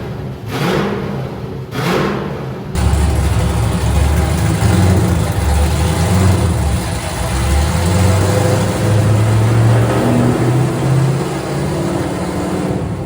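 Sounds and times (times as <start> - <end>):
car engine running loud: 2.8 - 13.0.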